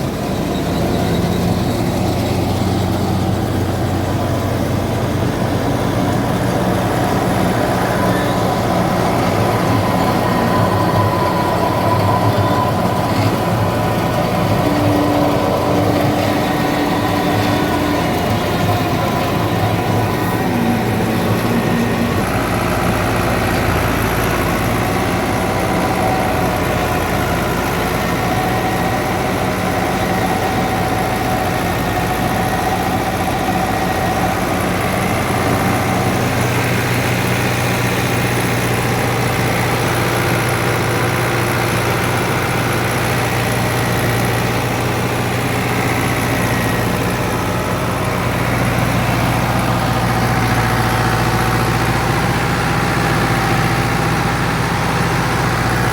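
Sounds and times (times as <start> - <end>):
diesel tractor engine running: 0.0 - 55.9
thresher machinery whine: 0.0 - 55.9.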